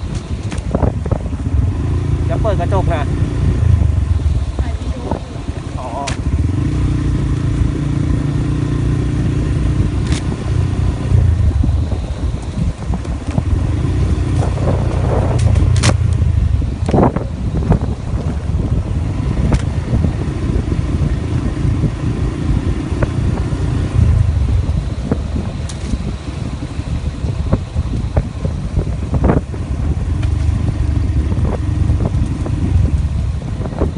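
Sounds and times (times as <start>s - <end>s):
vehicle rumbling on the move: 0.0s - 33.9s.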